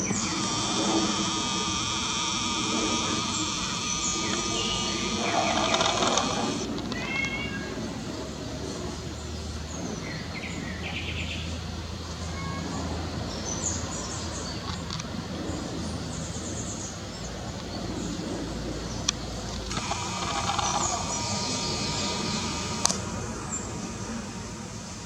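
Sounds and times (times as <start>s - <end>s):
small birds chirping: 0.0s - 7.4s, 18.9s - 25.0s.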